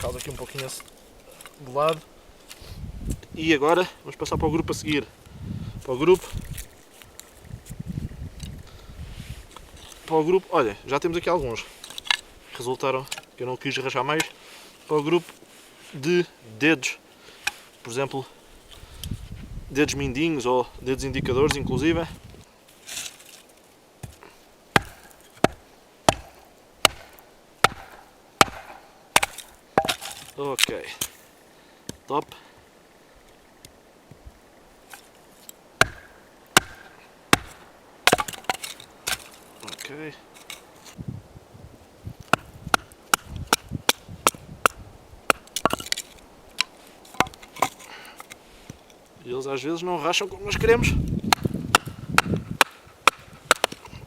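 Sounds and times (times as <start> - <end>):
wooden sticks being chopped: 11.8 - 13.3, 22.8 - 31.2, 34.9 - 41.0, 42.2 - 49.0, 50.5 - 54.0.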